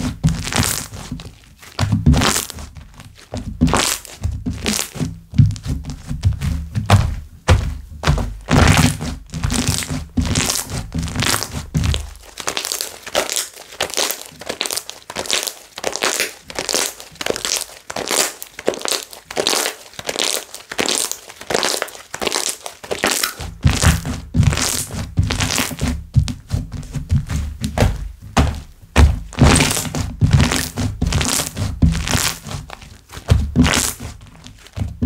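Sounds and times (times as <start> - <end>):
slime crackling and popping: 0.0 - 1.2, 2.1 - 2.6, 3.6 - 5.0, 8.4 - 25.9, 27.8 - 34.6
deep thuds: 4.3 - 12.2, 23.6 - 32.2.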